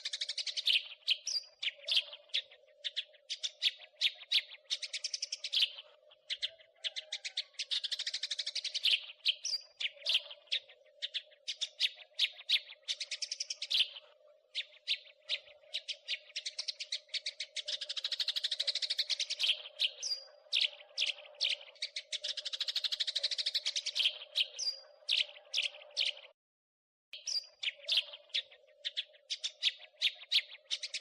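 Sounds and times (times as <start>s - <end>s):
sparrow chirping and rattling: 14.6s - 26.2s.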